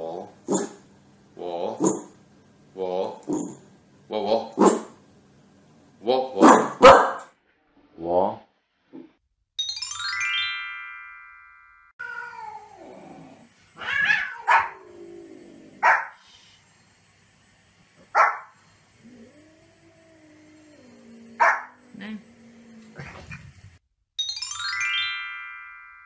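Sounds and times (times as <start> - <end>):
falling chime jingle: 9.6 - 11.9, 24.2 - 26.0
falling meow-like cry: 12.0 - 12.9
small dog yapping: 13.8 - 14.8, 15.8 - 16.1.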